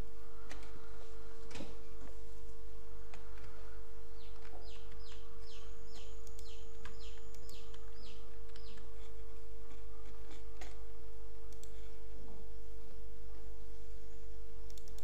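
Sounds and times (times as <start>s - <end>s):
steady low hum: 0.0s - 15.0s
bird singing falling notes: 4.1s - 8.9s
mouse clicks: 4.2s - 10.8s, 11.5s - 11.9s, 14.7s - 15.0s.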